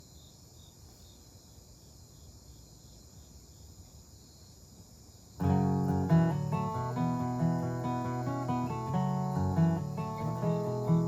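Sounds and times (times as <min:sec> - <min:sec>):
background hiss: 0:00.0 - 0:11.0
acoustic guitar strumming: 0:05.4 - 0:11.0
high chirps: 0:05.4 - 0:11.0.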